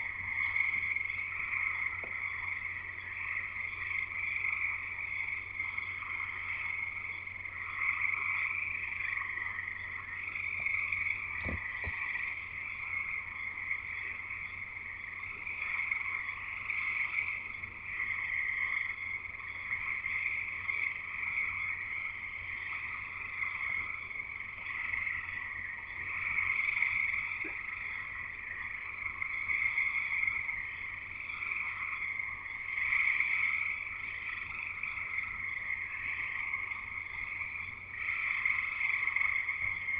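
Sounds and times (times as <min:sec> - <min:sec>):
frogs trilling: 0:00.0 - 0:39.9
brief thump: 0:11.4 - 0:12.0.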